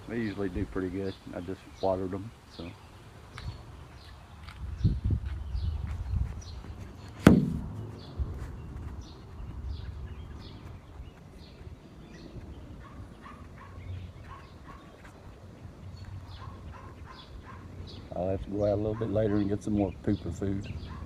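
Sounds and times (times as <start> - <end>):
small birds chirping: 0.0 - 21.0
sharp thump: 7.2 - 7.9.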